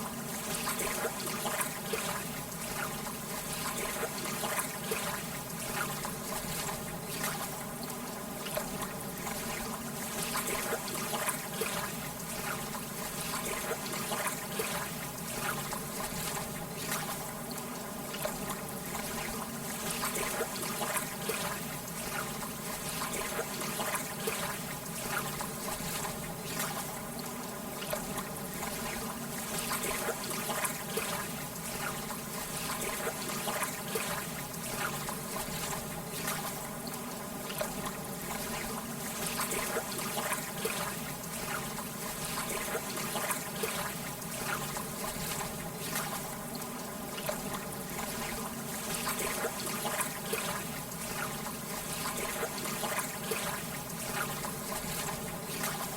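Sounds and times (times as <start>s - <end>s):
water lapping at shore: 0.0s - 55.9s.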